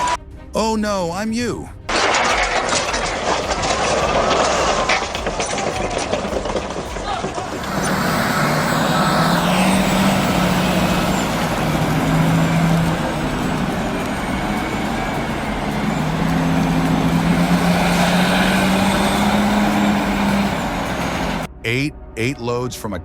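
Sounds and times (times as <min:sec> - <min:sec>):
heavy diesel engine under load: 0:02.0 - 0:21.5.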